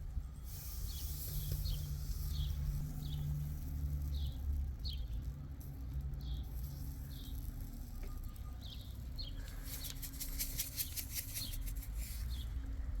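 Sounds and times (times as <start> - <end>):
small bird chirping: 0.8 - 3.4, 8.2 - 12.6.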